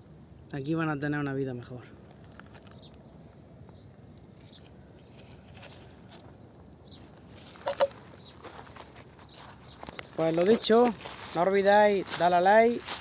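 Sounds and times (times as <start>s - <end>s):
light taps and rustles: 2.1s - 11.4s.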